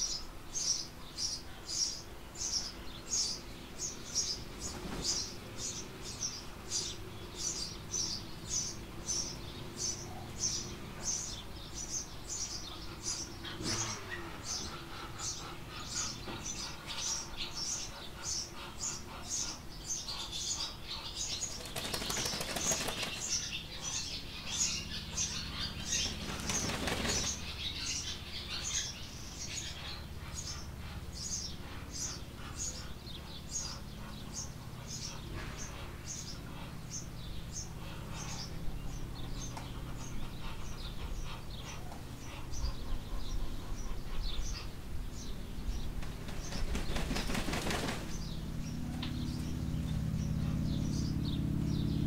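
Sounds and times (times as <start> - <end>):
bird wings flapping: 21.4 - 23.5, 26.0 - 27.5, 46.0 - 48.2.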